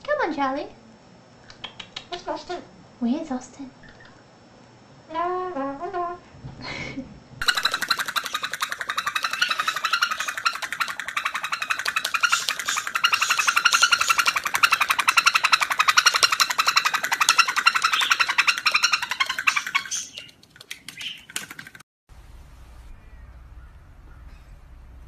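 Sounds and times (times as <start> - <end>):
parrot chattering trill: 7.4 - 20.4.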